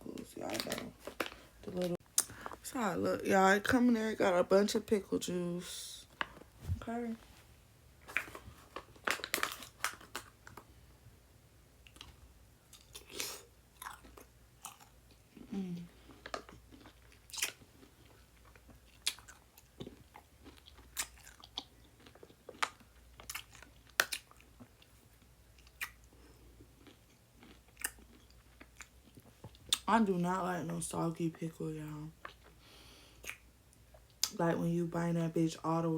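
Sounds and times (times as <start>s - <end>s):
pickle crunching while chewed: 11.8s - 15.5s, 16.1s - 26.1s, 26.7s - 29.8s.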